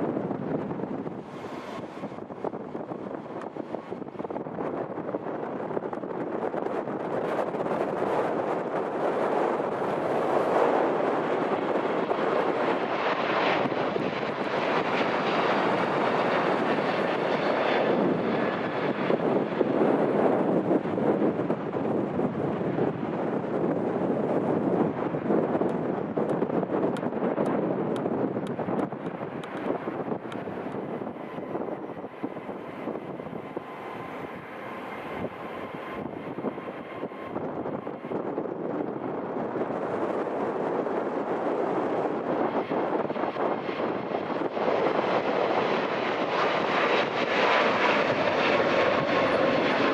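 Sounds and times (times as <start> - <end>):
jet engines roaring: 0.0 - 49.9
wind buffeting microphone: 0.0 - 49.9.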